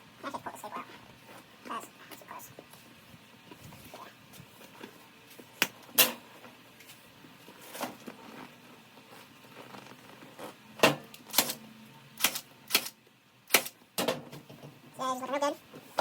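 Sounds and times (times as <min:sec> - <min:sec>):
staple gun firing: 0:11.3 - 0:11.6, 0:12.2 - 0:13.8.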